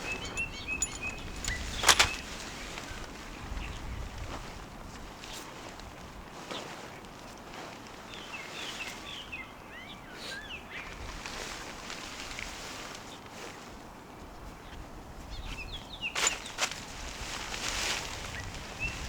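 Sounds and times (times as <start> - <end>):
small birds chirping: 0.0 - 2.4
wind: 0.0 - 19.0.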